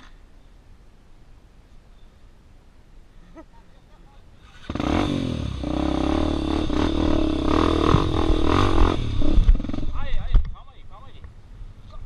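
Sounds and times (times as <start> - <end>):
dirt bike engine running: 4.5 - 10.4.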